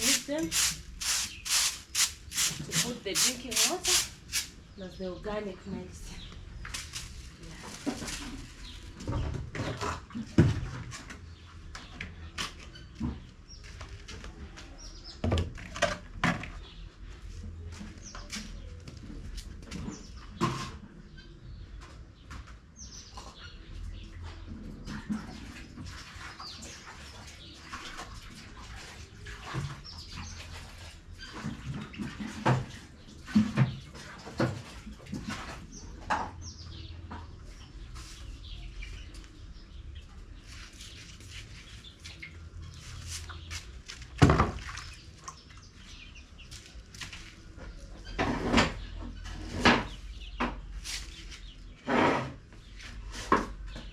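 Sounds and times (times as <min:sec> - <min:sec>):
chickens chirping: 0:34.9 - 0:51.8.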